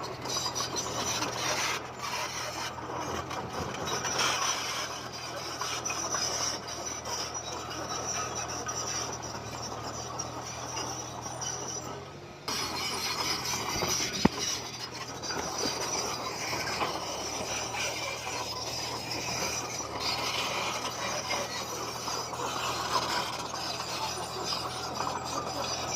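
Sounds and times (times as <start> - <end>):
bulldozer engine under load: 0.0 - 25.9
stones grinding and clinking: 12.5 - 25.9.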